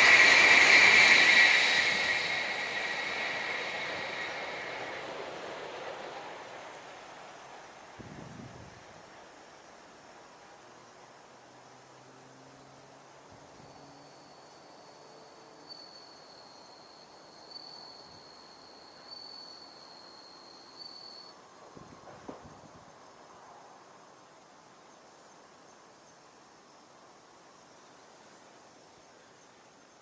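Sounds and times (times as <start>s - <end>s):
high-pitched insect trill: 0.0s - 5.5s, 13.6s - 21.3s
lower insect trill: 0.0s - 6.4s, 13.6s - 21.3s.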